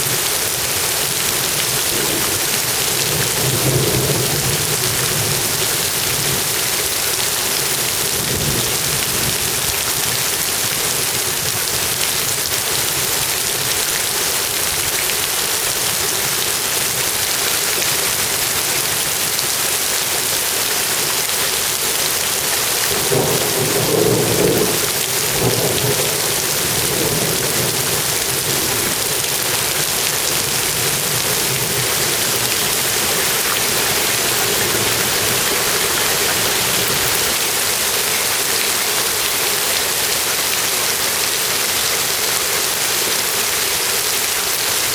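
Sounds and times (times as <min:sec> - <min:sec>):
steady rain falling: 0:00.0 - 0:44.9
low rumble of thunder: 0:22.9 - 0:29.2.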